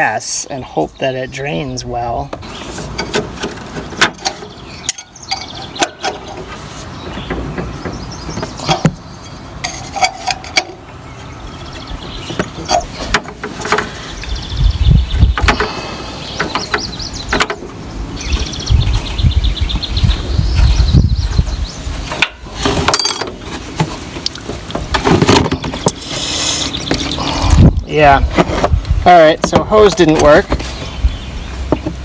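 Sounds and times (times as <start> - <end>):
tools knocking and clattering: 2.9 - 10.8, 22.1 - 24.0
low rumbling bursts: 26.7 - 31.7.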